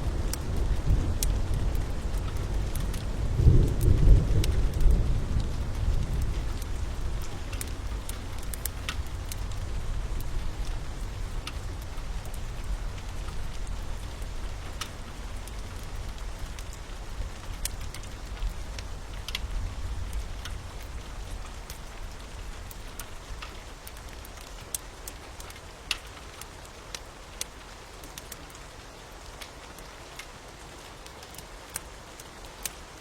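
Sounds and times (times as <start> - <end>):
low rumble of thunder: 0.0 - 23.4
steady rain: 0.0 - 33.0
wood fire popping and crackling: 0.0 - 33.0.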